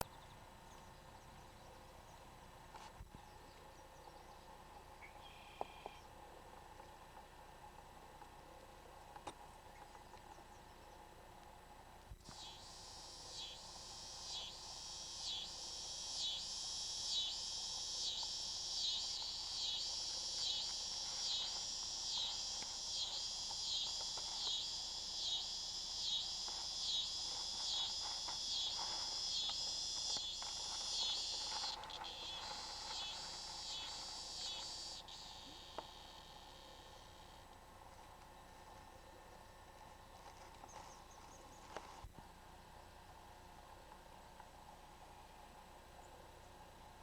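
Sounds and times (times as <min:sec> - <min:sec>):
insects chorus: 0:12.2 - 0:42.1.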